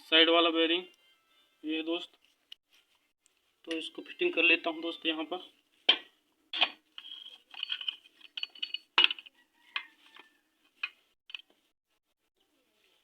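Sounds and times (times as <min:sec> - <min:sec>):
metal clinking and knocking: 0:05.9 - 0:11.6.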